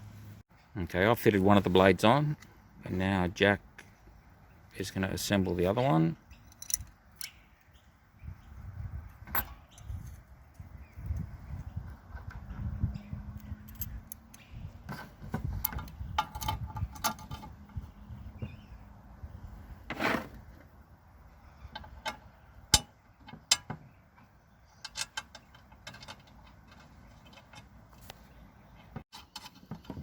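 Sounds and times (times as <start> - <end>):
small metal parts clinking: 6.3 - 7.4, 13.6 - 14.4
sharp metal knocks: 21.8 - 23.9.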